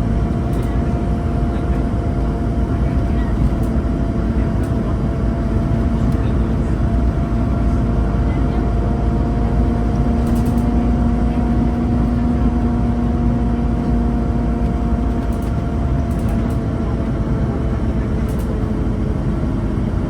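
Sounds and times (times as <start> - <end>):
bus diesel engine running: 0.0 - 20.0
engine whine: 0.0 - 20.0.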